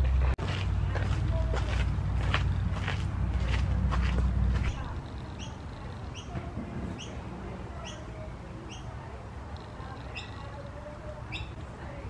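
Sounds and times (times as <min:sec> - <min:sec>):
bird chirping: 0:04.6 - 0:09.0, 0:09.6 - 0:11.6.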